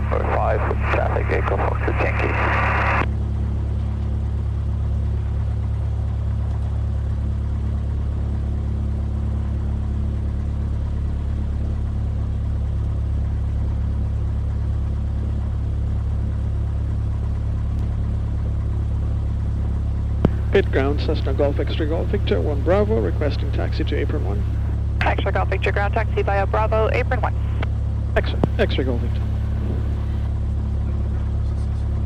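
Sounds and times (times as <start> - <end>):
aircraft engine droning: 0.0 - 3.1, 20.2 - 30.6.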